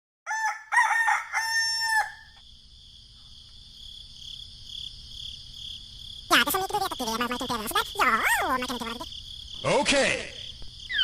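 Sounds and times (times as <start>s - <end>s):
rooster crowing: 0.3s - 2.4s
insect chirring: 0.3s - 11.0s.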